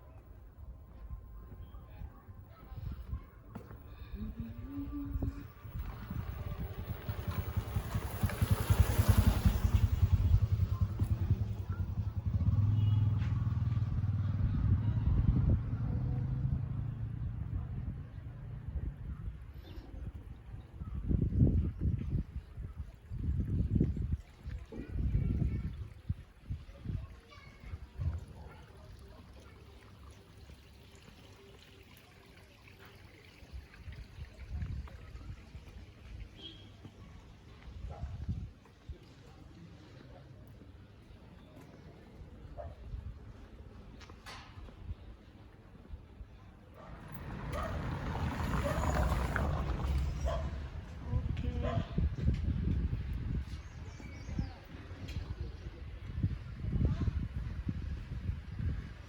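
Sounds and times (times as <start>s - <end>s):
trickling water: 21.8s - 37.3s, 46.8s - 50.9s.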